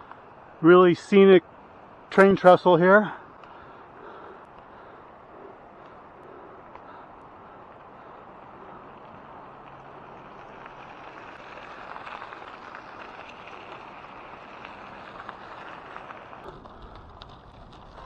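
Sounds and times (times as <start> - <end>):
bike tyres rolling on gravel: 0.0 - 18.0
faint ticks: 5.8 - 7.1.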